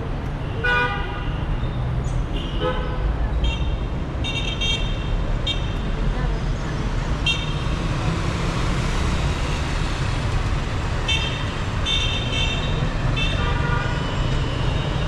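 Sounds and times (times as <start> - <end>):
city traffic rumble: 0.0 - 15.0
vehicle horns honking: 0.5 - 1.5, 7.2 - 7.9, 11.0 - 15.0.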